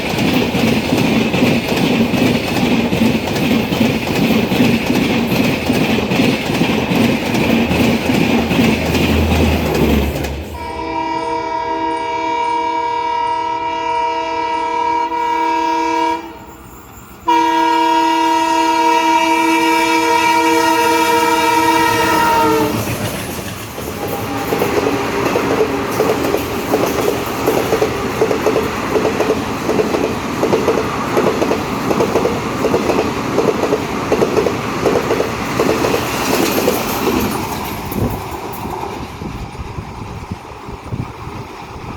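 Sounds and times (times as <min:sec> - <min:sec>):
train clickety-clack: 0:00.0 - 0:10.7, 0:15.0 - 0:41.9
locomotive horn blast: 0:10.4 - 0:16.5, 0:17.3 - 0:22.9, 0:24.0 - 0:26.0.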